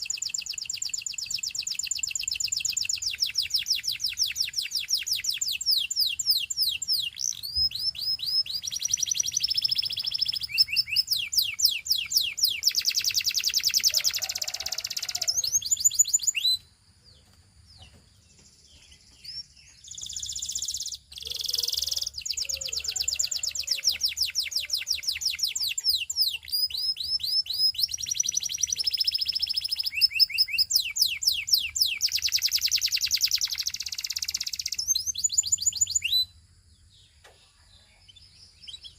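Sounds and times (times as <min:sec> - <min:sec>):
canary singing: 0:00.0 - 0:37.1.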